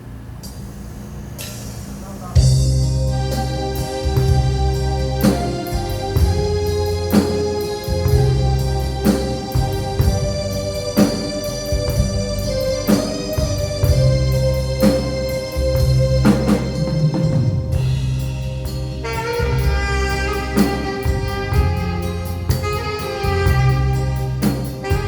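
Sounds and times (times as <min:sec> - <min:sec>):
drum kit hits: 0:01.4 - 0:25.0
organ keyboard chords: 0:01.9 - 0:25.0
bass line: 0:02.4 - 0:25.0.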